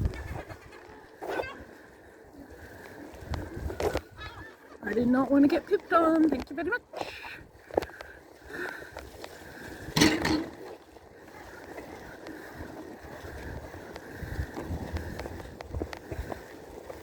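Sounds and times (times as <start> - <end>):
wind on microphone: 0.0 - 1.6, 3.2 - 5.1, 11.6 - 17.0.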